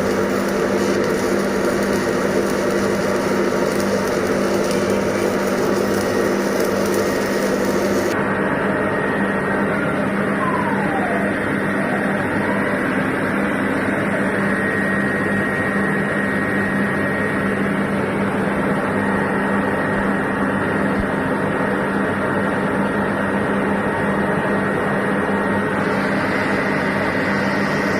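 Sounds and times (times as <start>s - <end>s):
falling whine: 0.0s - 17.5s, 25.8s - 27.9s
machine hum with high tone: 0.0s - 27.9s.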